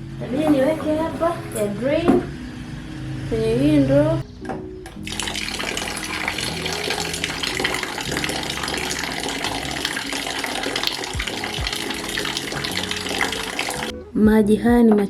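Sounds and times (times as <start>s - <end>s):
water pouring into a bucket: 5.0s - 13.9s.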